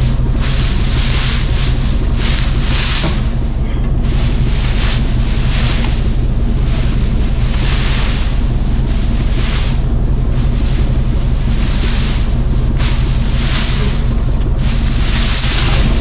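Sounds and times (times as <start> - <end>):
tractor engine running: 0.0 - 16.0
wind buffeting microphone: 0.0 - 16.0.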